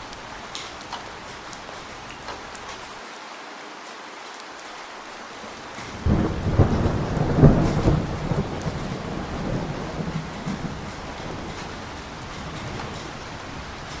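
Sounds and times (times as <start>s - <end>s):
steady rain: 0.0s - 14.0s
thunder clap and rumble: 5.6s - 14.0s.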